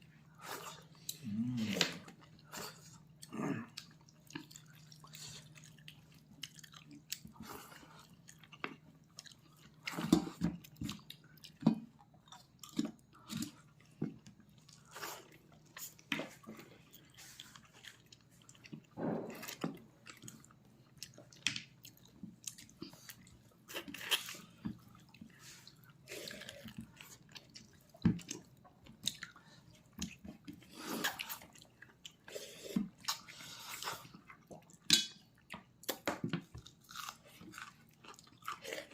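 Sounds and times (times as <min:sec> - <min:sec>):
person chewing and biting meat: 0:35.6 - 0:38.9.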